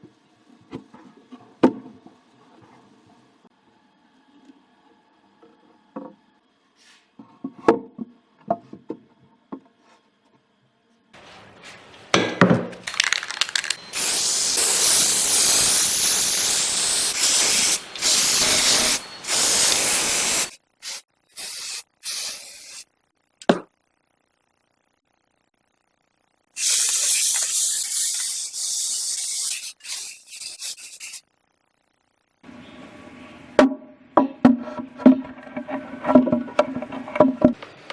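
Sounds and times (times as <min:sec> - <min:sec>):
short air puffs: 0:12.9 - 0:22.8, 0:26.6 - 0:31.2
hissing spray bursts: 0:12.9 - 0:22.9, 0:26.6 - 0:31.2.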